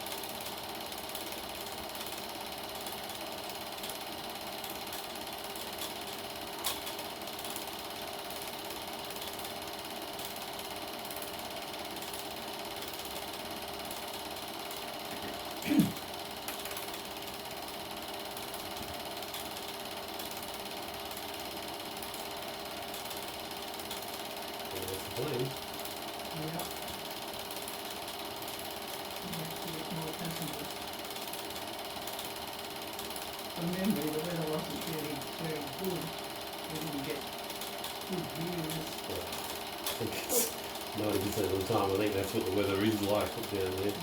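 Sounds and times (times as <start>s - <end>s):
film projector running: 0.0s - 44.0s.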